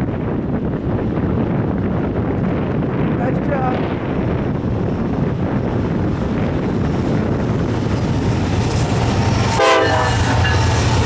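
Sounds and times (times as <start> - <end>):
freight train rumbling past: 0.0 - 11.0
locomotive air horn blast: 9.5 - 10.6.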